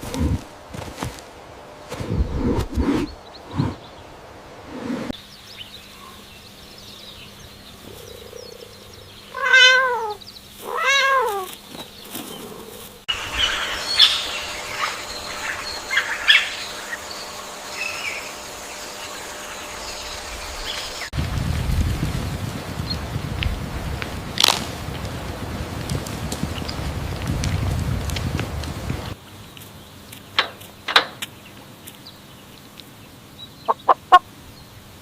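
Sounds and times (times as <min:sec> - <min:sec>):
cat meowing: 0:09.3 - 0:11.5.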